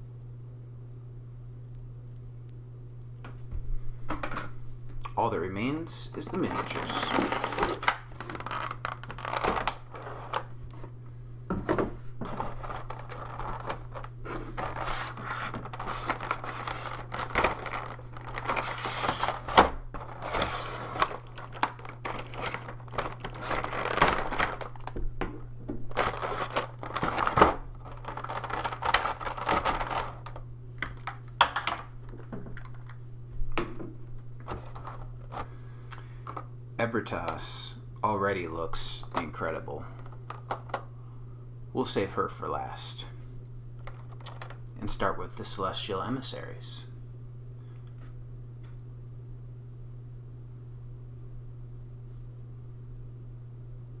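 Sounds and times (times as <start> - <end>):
steady low hum: 0.0 - 54.0
plastic packaging crinkling: 6.0 - 11.0, 12.2 - 25.1, 25.7 - 31.4, 34.4 - 36.4.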